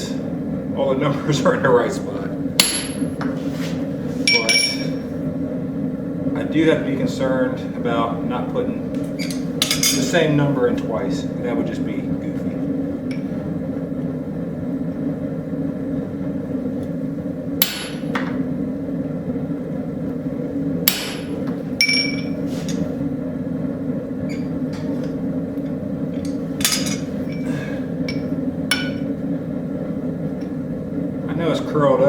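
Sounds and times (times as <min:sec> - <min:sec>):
hammer striking metal punch: 0:02.6 - 0:03.2, 0:17.6 - 0:18.4, 0:20.9 - 0:22.4, 0:28.1 - 0:29.1.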